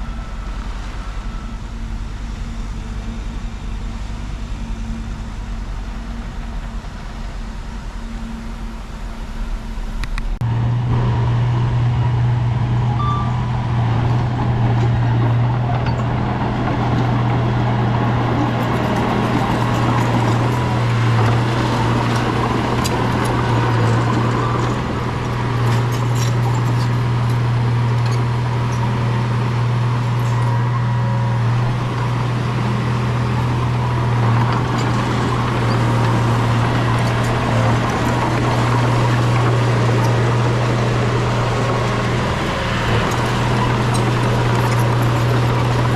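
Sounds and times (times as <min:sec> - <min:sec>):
bulldozer diesel engine drone: 0:00.0 - 0:45.9
metallic clanks and squeaks: 0:12.9 - 0:16.2, 0:25.6 - 0:28.9, 0:34.3 - 0:40.4.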